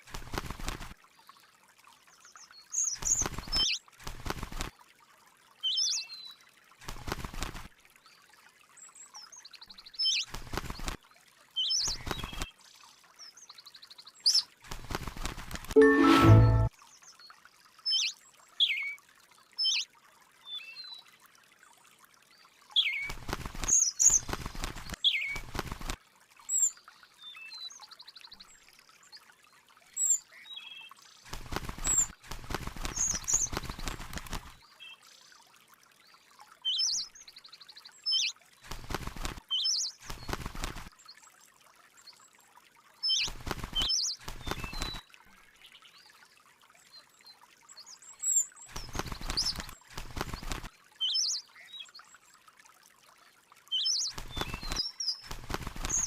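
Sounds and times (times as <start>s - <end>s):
birds chirping: 22.8s - 25.4s, 32.8s - 34.5s, 43.0s - 45.0s, 47.8s - 51.8s, 53.8s - 56.0s.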